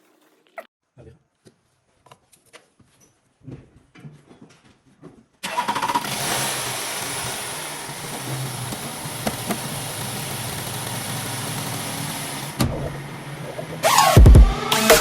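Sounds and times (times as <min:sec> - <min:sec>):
diesel engine starting and idling: 0:05.4 - 0:15.0.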